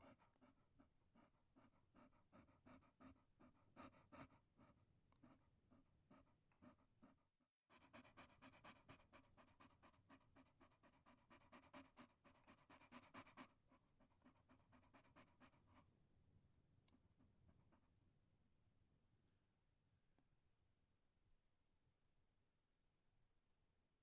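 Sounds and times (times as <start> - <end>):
dog panting: 0.0 - 16.0.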